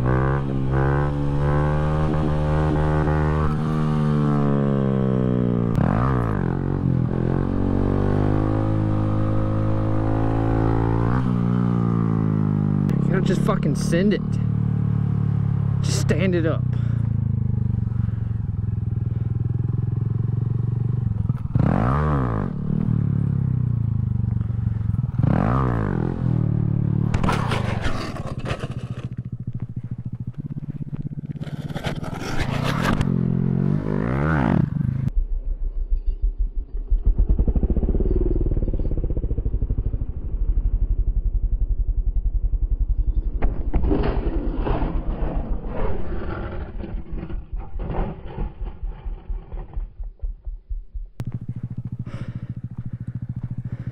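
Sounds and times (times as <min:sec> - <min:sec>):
minibike engine revving: 0:00.0 - 0:35.1, 0:51.2 - 0:53.9
engine chugging: 0:46.4 - 0:53.9.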